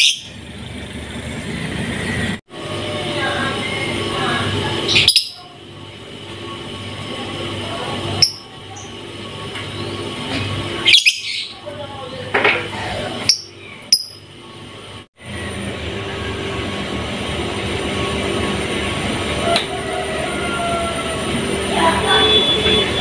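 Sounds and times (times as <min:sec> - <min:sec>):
sharp bird chirps: 0:13.3 - 0:14.3.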